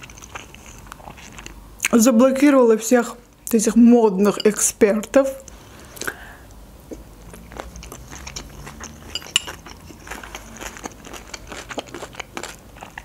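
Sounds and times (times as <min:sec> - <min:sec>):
chewing crisp salad: 0:00.0 - 0:01.9, 0:06.9 - 0:13.0
metal fork clinking glass bowl: 0:09.0 - 0:09.9.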